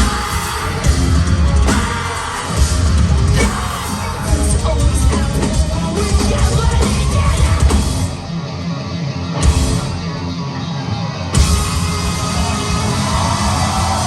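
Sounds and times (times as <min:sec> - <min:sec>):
person singing: 0:00.0 - 0:08.2
live rock band playing loud: 0:00.0 - 0:14.0.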